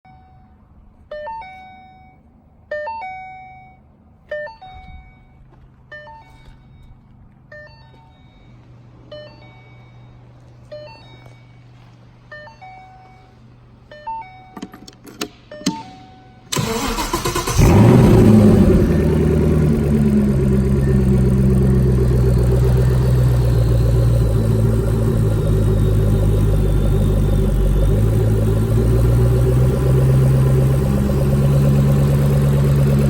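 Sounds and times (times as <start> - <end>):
low steady hum: 17.4 - 33.0.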